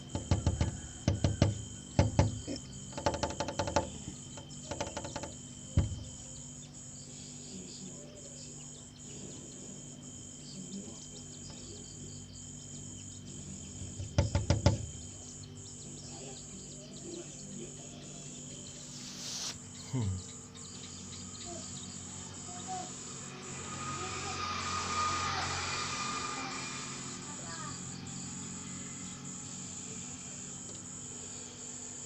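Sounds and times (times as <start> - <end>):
bird tapping on glass: 0.0 - 6.3, 13.8 - 15.2
insect trilling: 0.0 - 32.0
single knock: 0.1 - 6.3, 13.8 - 15.1.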